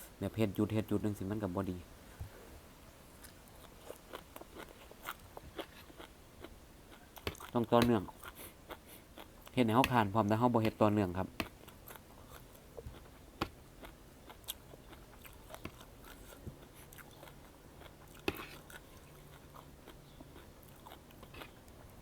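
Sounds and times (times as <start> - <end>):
chewing and mouth sounds: 3.2 - 9.9, 11.4 - 22.0.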